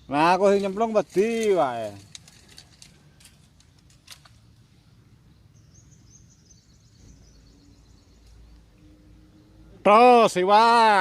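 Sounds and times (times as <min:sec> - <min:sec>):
low outdoor background noise: 0:00.0 - 0:11.0
faint bird chirping: 0:04.4 - 0:09.8.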